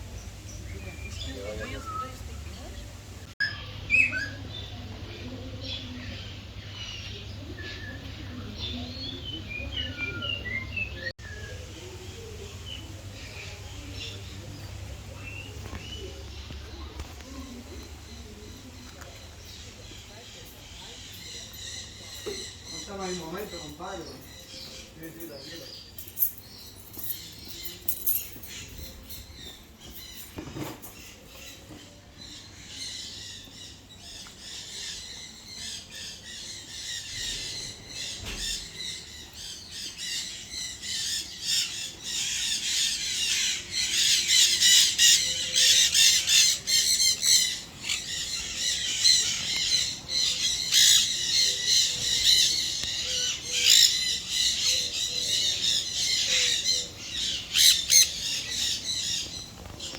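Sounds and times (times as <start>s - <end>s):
flock of parrots squawking: 34.6s - 59.9s.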